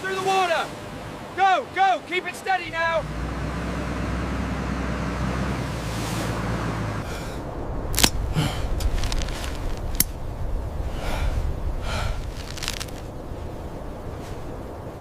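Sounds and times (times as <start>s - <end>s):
low steady rumble: 2.7s - 15.0s
sharp cracks: 7.8s - 10.2s, 12.2s - 13.1s.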